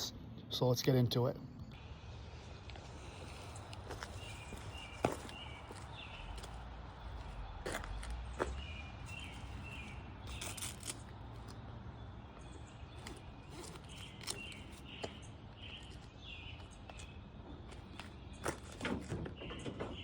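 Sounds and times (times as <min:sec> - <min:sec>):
small bird chirping: 0:02.9 - 0:18.6.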